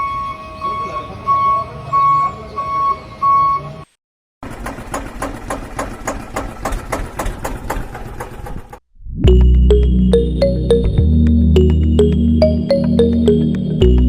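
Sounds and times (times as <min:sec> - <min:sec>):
repeating electronic beep: 0:09.2 - 0:14.0.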